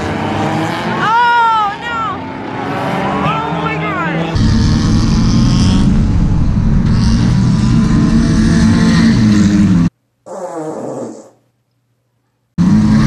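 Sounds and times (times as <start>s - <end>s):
car on dirt track: 0.0s - 9.9s, 12.6s - 13.0s
car engine running hard: 1.8s - 9.9s, 12.6s - 13.0s.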